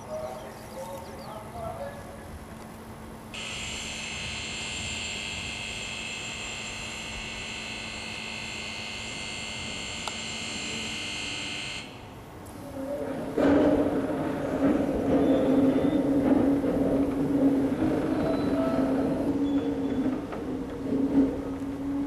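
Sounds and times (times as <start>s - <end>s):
faint machinery hum: 0.0s - 22.0s
high-pitched electric buzz: 3.3s - 12.1s.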